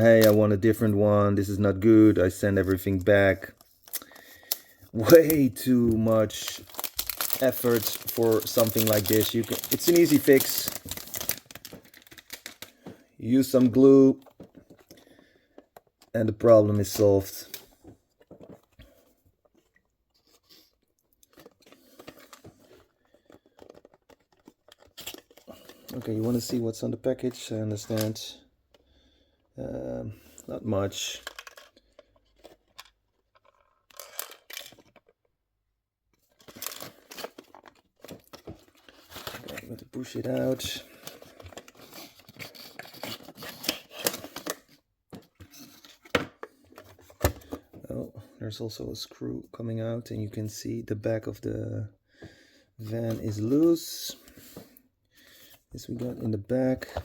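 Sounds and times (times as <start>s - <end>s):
hands crinkling plastic packaging: 2.6s - 17.6s, 21.2s - 26.6s, 36.3s - 44.7s.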